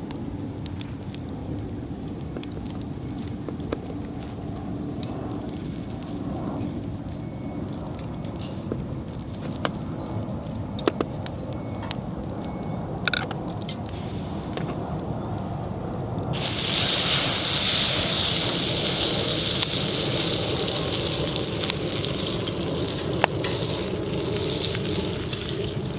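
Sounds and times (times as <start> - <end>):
wood fire crackling: 0.0 - 25.9
chicken sizzling on griddle: 15.7 - 25.9.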